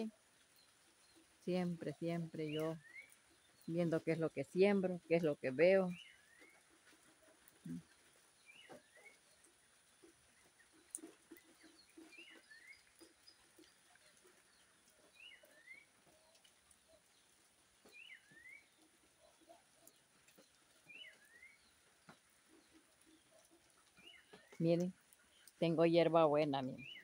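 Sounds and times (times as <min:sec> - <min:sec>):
soft low animal sounds: 0:05.2 - 0:25.8.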